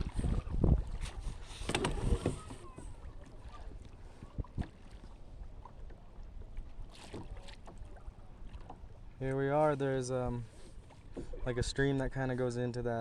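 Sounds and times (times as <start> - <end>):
wind rumbling on microphone: 0.0 - 5.6.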